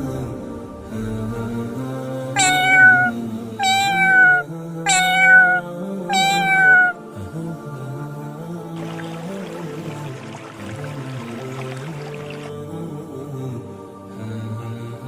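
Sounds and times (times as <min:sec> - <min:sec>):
cat meowing: 0:02.4 - 0:07.0
soft background music: 0:04.4 - 0:15.0.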